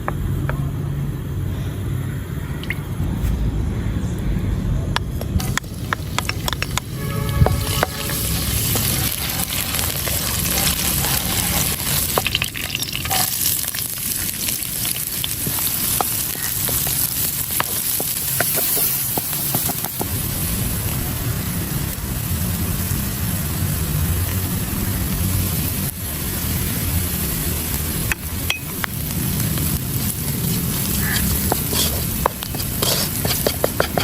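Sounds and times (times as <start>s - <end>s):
utensil stirring and clicking on pot: 5.0s - 20.1s, 28.0s - 34.0s
food sizzling in a pot: 5.4s - 34.0s.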